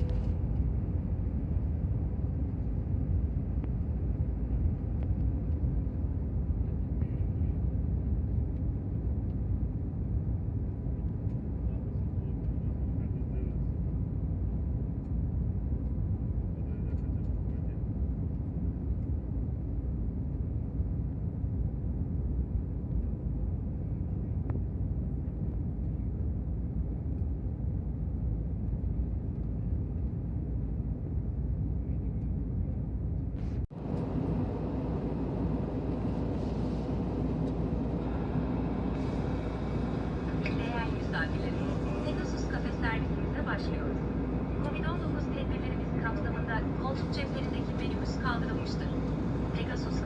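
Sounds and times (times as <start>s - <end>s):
jet engine and airflow rumble: 0.0s - 50.0s.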